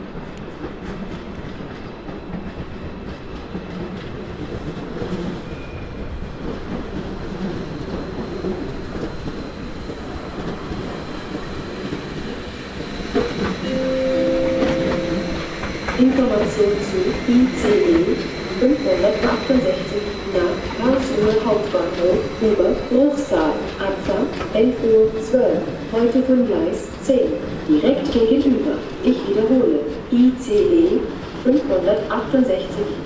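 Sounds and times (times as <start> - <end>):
train rumbling: 0.0 - 33.0
station chime: 13.6 - 17.2.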